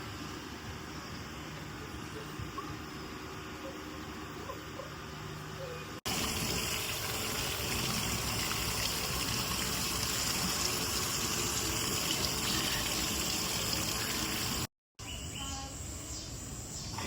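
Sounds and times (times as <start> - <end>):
rushing water: 6.1 - 14.7.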